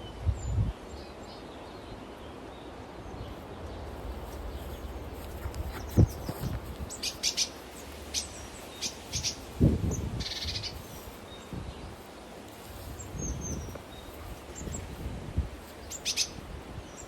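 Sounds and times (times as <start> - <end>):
small birds chirping: 0.2 - 17.0
buzzy bird trill: 4.2 - 12.1, 12.8 - 17.0.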